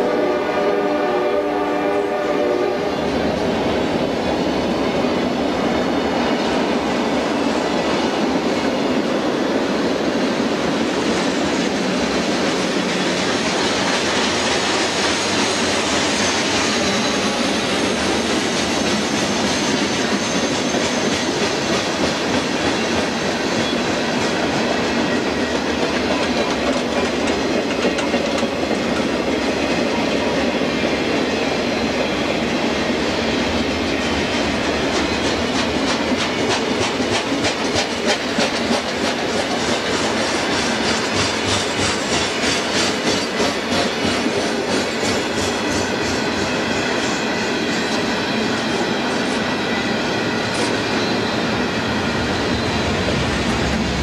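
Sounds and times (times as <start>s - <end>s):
freight train wheels on rail: 0.0s - 54.0s
clatter over rail joints: 25.8s - 29.2s.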